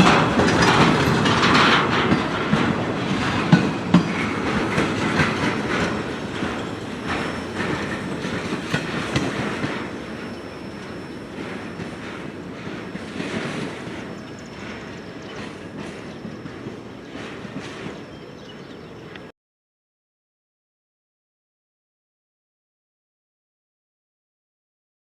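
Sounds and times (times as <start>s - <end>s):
train wheels clacking on rails: 0.0s - 19.3s.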